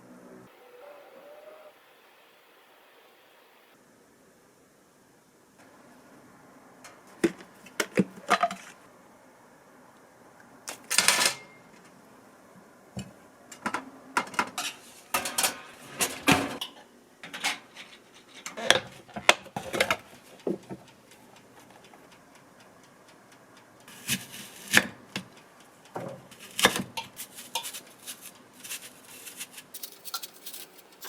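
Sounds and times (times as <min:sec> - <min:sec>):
kitchenware clinking and knocking: 0:13.6 - 0:17.9.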